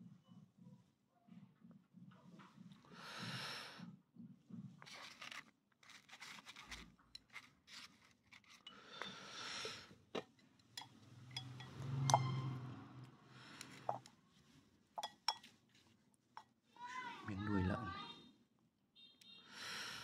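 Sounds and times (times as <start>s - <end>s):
chopsticks clicking on dishes: 10.2s - 12.4s, 13.5s - 14.1s, 15.0s - 15.6s.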